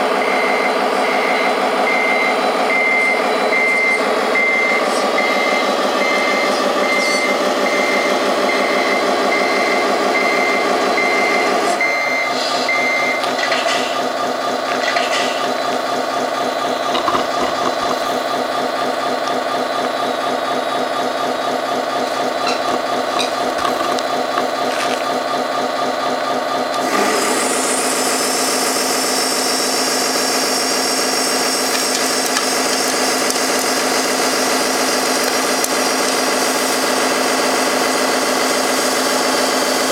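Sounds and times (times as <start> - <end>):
simulated truck engine running: 0.0 - 39.9
reversing beeps: 0.2 - 13.3.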